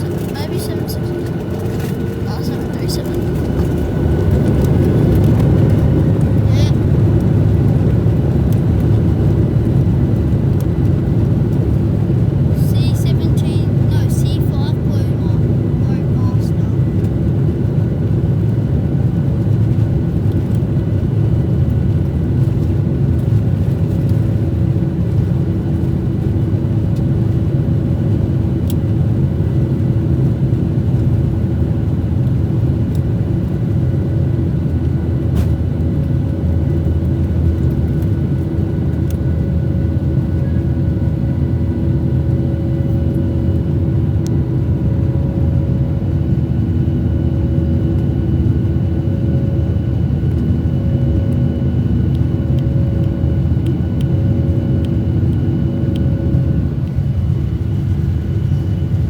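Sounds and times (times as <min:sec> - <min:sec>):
steady hum: 0:00.0 - 0:17.4
jet engine cabin rumble: 0:00.0 - 0:59.0.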